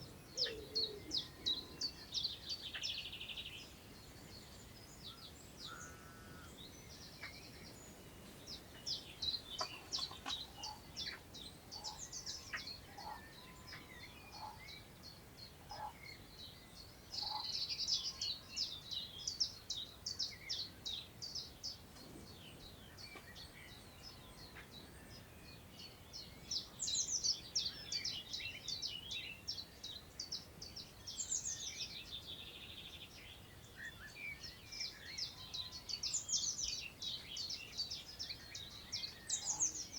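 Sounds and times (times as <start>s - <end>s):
wind hissing through grass: 0.0s - 14.2s
songbirds chirping: 0.0s - 39.9s.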